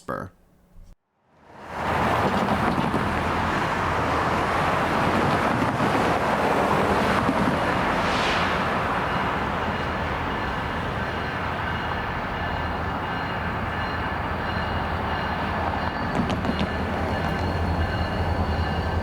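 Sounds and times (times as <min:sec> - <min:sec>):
train rolling on rails: 0:01.4 - 0:19.0
diesel locomotive rumble: 0:01.6 - 0:19.0.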